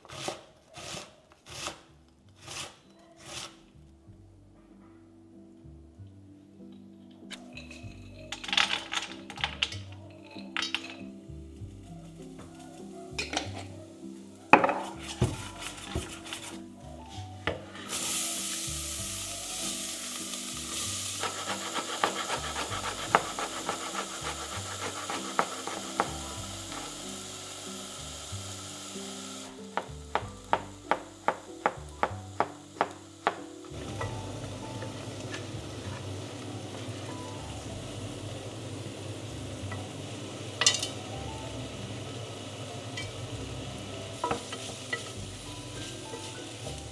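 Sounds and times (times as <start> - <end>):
food sizzling in a pan: 10.8 - 17.2, 17.8 - 46.9
utensil clinking while stirring: 20.2 - 27.2.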